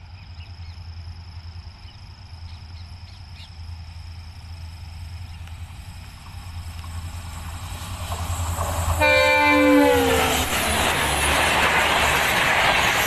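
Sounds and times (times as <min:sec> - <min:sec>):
distant train rumble: 0:00.0 - 0:13.0
high whine: 0:04.7 - 0:13.0.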